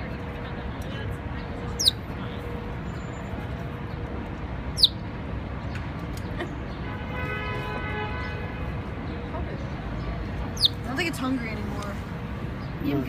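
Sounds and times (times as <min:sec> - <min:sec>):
low rumble of city background: 0:00.0 - 0:13.0
small bird chirp: 0:01.8 - 0:02.0, 0:04.8 - 0:05.0, 0:10.6 - 0:10.8.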